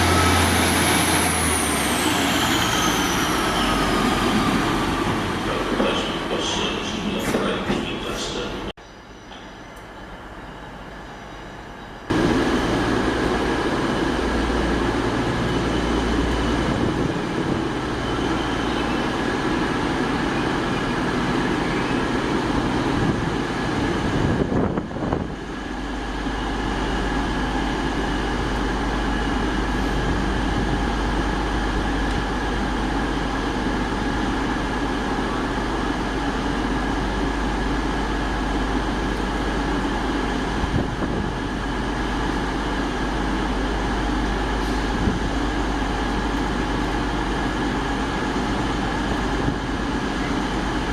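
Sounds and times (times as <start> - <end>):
train engine drone: 0.0 - 50.9.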